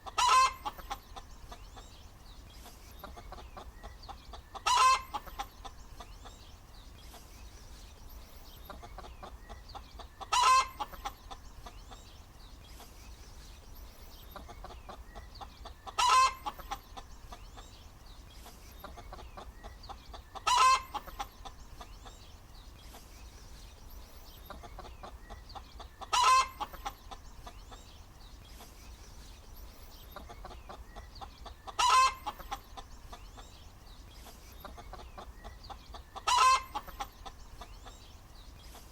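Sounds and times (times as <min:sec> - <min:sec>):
hen clucking: 0:00.0 - 0:02.0, 0:02.6 - 0:06.5, 0:08.6 - 0:13.0, 0:14.2 - 0:17.8, 0:18.4 - 0:22.3, 0:24.4 - 0:28.8, 0:30.0 - 0:33.6, 0:34.2 - 0:38.1.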